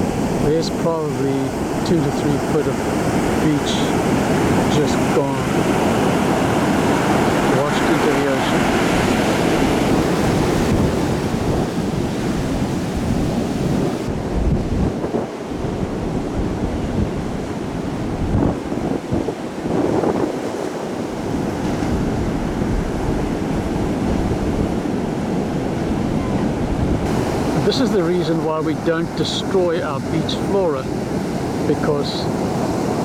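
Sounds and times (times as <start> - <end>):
surf breaking on a beach: 0.0 - 33.0
wind buffeting the microphone: 0.0 - 33.0.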